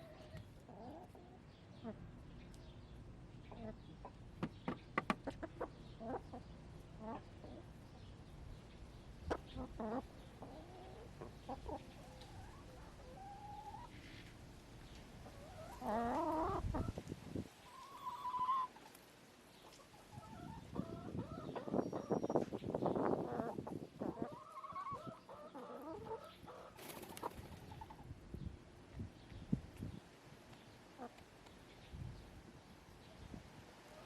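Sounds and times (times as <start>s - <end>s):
hens clucking: 0.0s - 2.0s, 3.4s - 7.8s, 9.2s - 19.0s, 19.6s - 28.1s, 30.9s - 31.3s.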